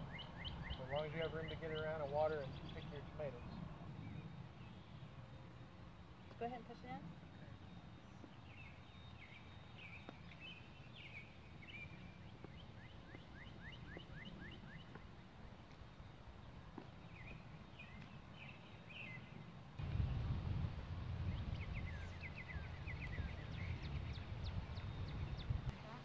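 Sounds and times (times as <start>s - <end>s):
small birds chirping: 0.0s - 20.4s, 21.2s - 26.0s
low rumble: 19.8s - 25.7s.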